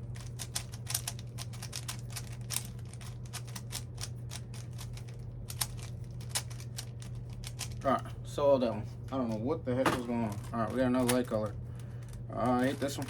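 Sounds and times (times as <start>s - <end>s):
steady low hum: 0.0s - 13.0s
puzzle cube clacking: 0.2s - 4.9s.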